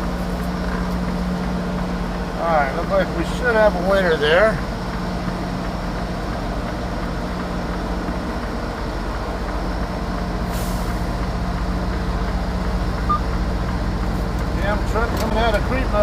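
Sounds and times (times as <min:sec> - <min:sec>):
diesel truck engine running: 0:00.0 - 0:16.0
air brake hiss: 0:10.4 - 0:11.1.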